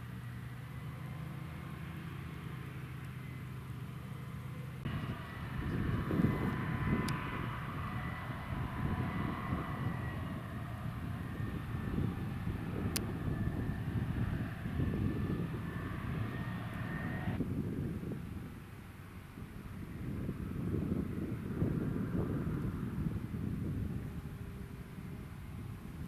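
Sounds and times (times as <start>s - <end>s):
high whine: 4.8s - 17.5s.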